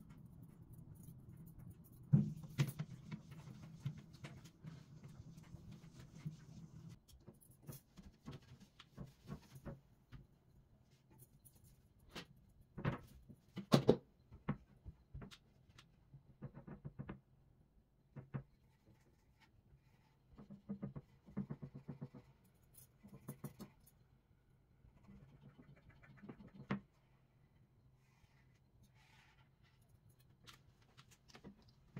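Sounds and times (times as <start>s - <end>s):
household objects knocking and clicking: 16.3s - 17.3s.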